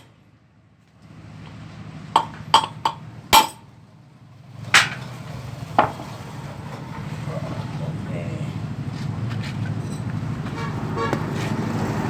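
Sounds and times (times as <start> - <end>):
hammer striking metal: 2.2 - 3.7.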